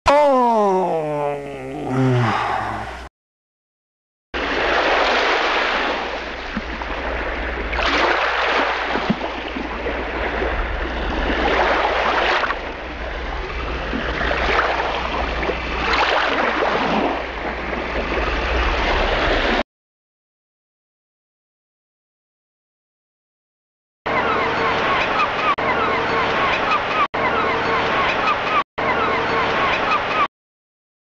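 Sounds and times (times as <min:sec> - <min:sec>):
sea surf washing in: 0:04.4 - 0:19.6.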